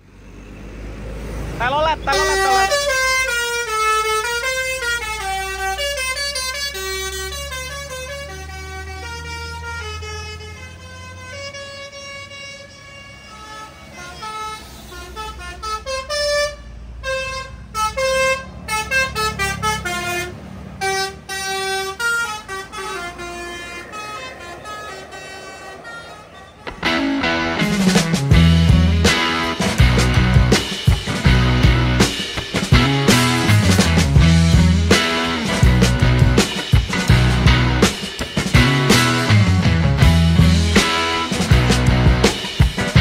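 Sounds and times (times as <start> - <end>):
bus engines rumbling: 0.0 - 43.0
musical bus air horns: 1.8 - 43.0.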